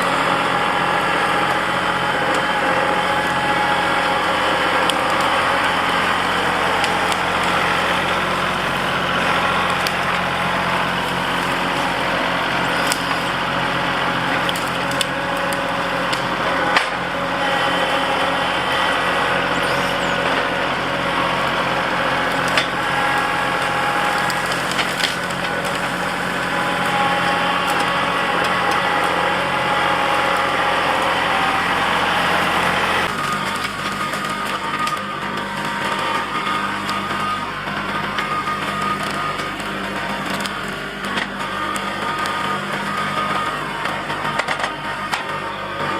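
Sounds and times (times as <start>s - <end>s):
tractor diesel engine running: 0.0s - 45.9s
branches snapping: 11.2s - 16.9s, 22.3s - 27.8s, 33.0s - 37.4s.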